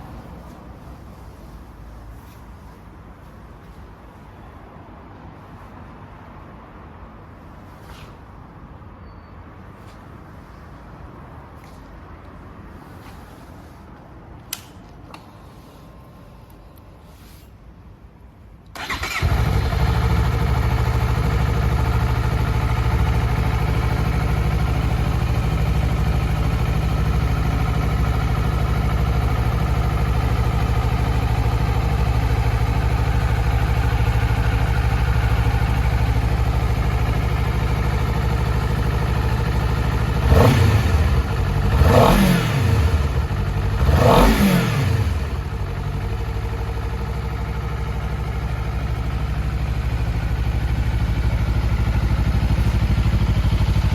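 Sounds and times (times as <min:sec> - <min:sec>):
motorcycle engine idling and revving: 0:18.8 - 0:53.9.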